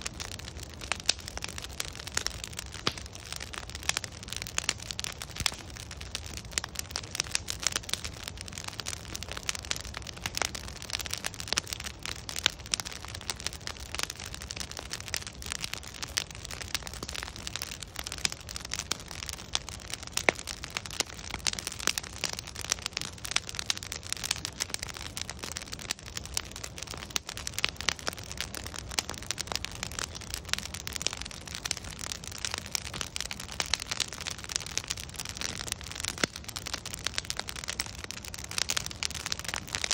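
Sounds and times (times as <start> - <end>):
logs crackling in a bonfire: 0.0 - 39.9.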